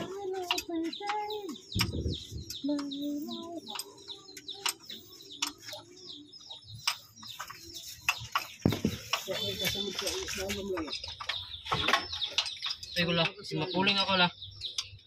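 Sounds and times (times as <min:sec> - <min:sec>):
small birds chirping: 0:00.0 - 0:15.0
sharp clicks: 0:00.4 - 0:05.9.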